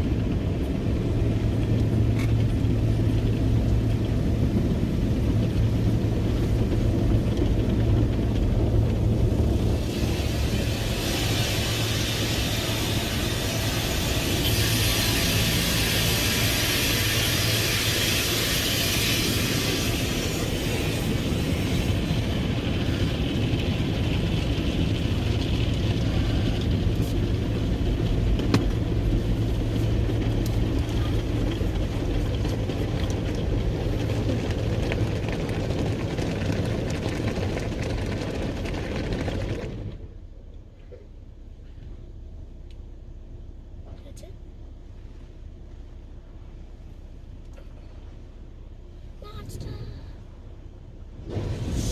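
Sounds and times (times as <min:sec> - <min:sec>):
car wash motor hum: 0:00.0 - 0:51.9
hissing water spray: 0:09.6 - 0:24.1.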